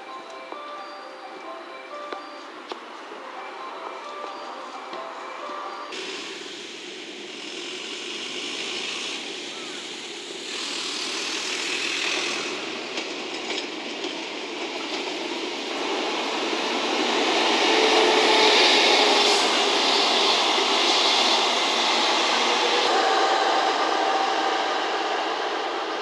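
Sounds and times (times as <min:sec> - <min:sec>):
train wheels rumbling on rail: 0:05.0 - 0:26.0.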